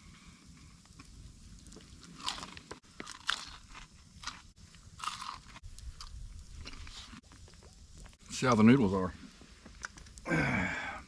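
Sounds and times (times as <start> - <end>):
crunchy chewing: 0.4 - 8.2.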